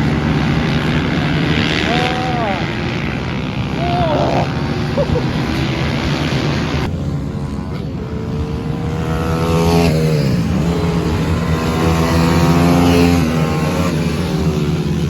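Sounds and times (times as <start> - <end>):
distant motorbike engines: 0.0 - 15.0
pit bike engine revving: 0.0 - 15.0.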